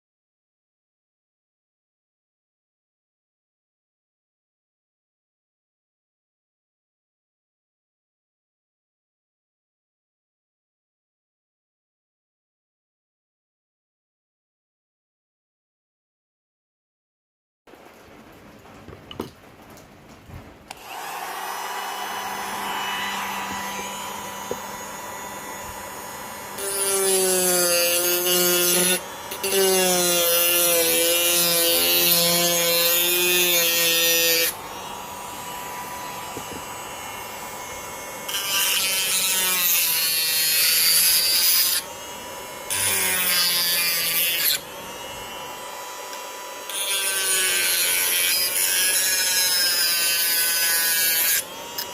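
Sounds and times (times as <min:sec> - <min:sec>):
motor humming: 0:20.7 - 0:30.3
motor cutting into material: 0:20.7 - 0:51.9.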